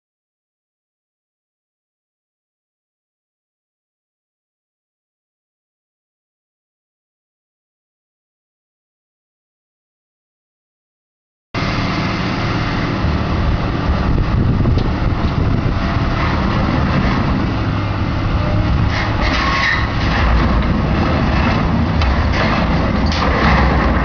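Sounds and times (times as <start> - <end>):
excavator diesel engine running: 11.6 - 24.0
metal knocks and clanks: 18.6 - 24.0.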